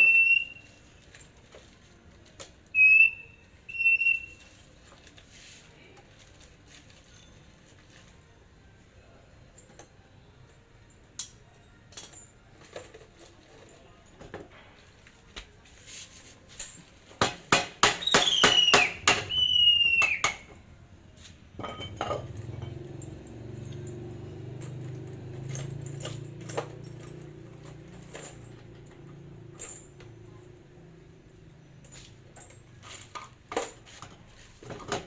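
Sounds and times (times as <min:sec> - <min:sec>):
short squeals falling in pitch: 0:02.8 - 0:04.4
metal tools clinking: 0:09.4 - 0:15.2, 0:21.5 - 0:35.0.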